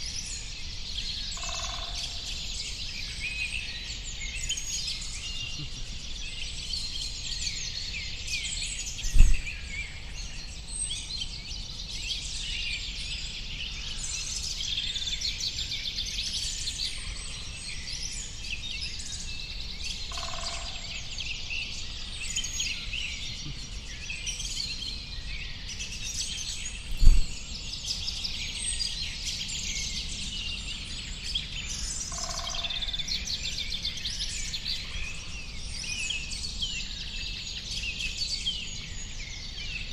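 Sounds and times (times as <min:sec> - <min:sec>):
small birds chirping and twittering: 0:00.0 - 0:39.9
low thump: 0:09.1 - 0:09.5, 0:27.0 - 0:27.4.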